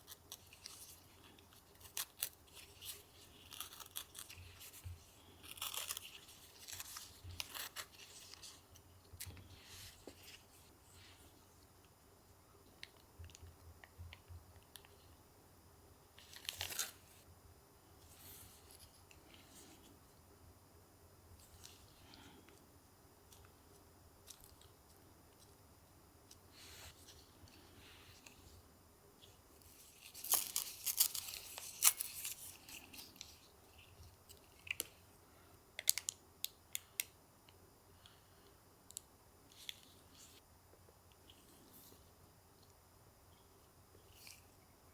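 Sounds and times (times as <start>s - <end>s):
paper tearing and crinkling: 1.7s - 4.8s, 5.4s - 8.5s, 29.8s - 33.0s
crinkling rustle: 29.2s - 35.0s.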